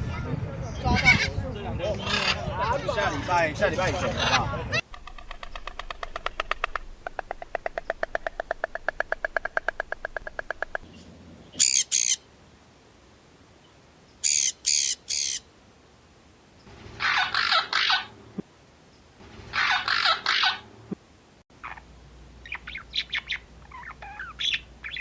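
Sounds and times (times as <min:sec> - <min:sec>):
bird squawks: 0:00.7 - 0:02.8, 0:04.0 - 0:10.8, 0:11.6 - 0:12.2, 0:14.2 - 0:15.4, 0:17.0 - 0:18.1, 0:19.5 - 0:20.7, 0:21.6 - 0:25.0
bird rattling trill: 0:03.0 - 0:10.8
high-pitched bird calls: 0:04.2 - 0:11.0, 0:11.6 - 0:12.2, 0:16.9 - 0:18.1, 0:19.5 - 0:20.6, 0:21.6 - 0:25.0.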